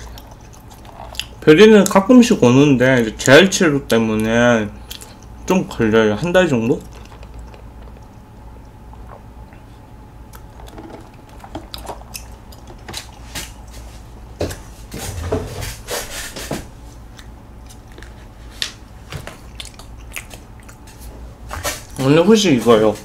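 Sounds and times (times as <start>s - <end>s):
sipping and chewing mouth sounds: 0.0s - 2.0s, 3.2s - 5.8s, 6.6s - 13.8s, 19.4s - 21.1s.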